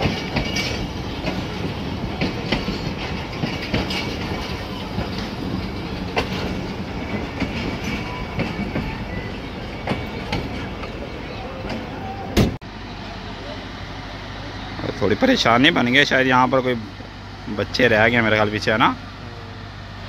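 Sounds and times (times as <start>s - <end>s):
wheels clicking over rail joints: 0.0s - 12.6s
train coaches rumbling past: 0.0s - 20.0s.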